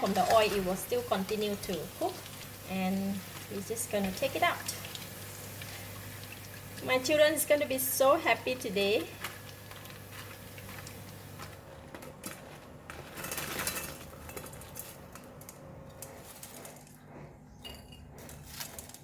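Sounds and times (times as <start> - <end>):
soft frying hiss: 0.0 - 11.6.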